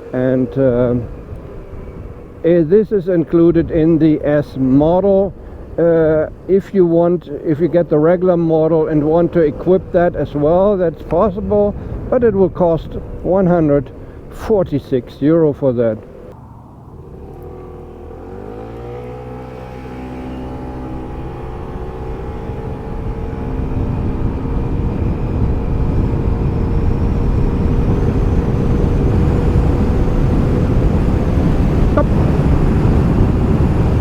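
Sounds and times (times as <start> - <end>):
scooter engine at full throttle: 0.0 - 2.7, 3.5 - 6.5, 15.9 - 34.0
wind and road noise: 0.0 - 34.0.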